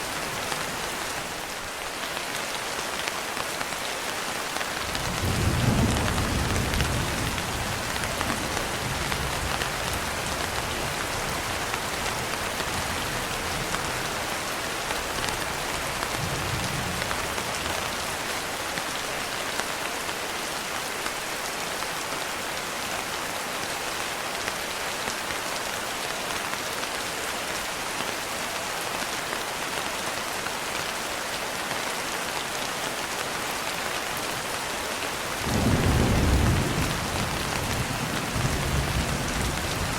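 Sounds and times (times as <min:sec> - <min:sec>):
dense rainfall: 0:00.0 - 0:39.9
rumble of thunder: 0:04.9 - 0:11.6, 0:35.5 - 0:39.9.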